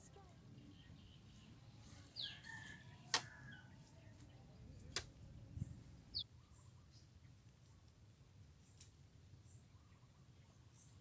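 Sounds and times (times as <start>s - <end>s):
faint outdoor background: 0.0s - 11.0s
bird chirp: 5.6s - 7.4s, 9.4s - 11.0s.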